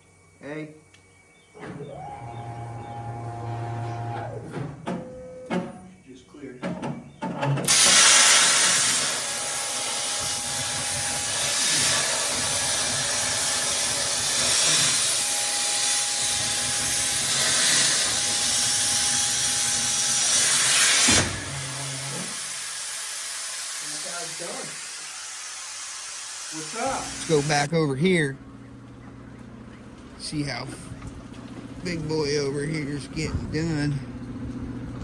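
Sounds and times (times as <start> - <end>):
plasma cutter hissing: 7.7 - 27.7.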